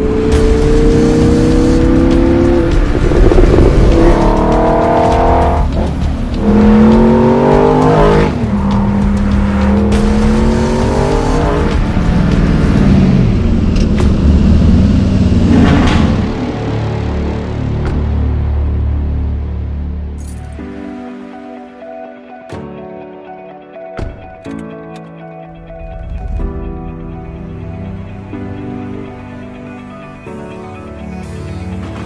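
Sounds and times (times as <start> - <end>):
car engine accelerating through gears: 0.0 - 16.8
music: 0.0 - 32.0.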